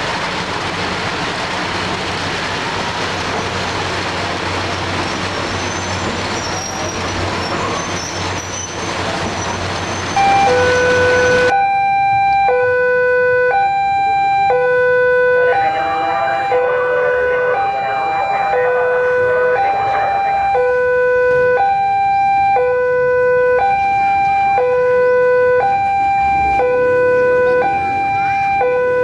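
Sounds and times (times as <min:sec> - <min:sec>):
diesel train passing: 0:00.0 - 0:11.5, 0:14.2 - 0:29.0
wheel-on-rail noise: 0:00.0 - 0:11.5
electronic two-tone signal: 0:10.2 - 0:12.7.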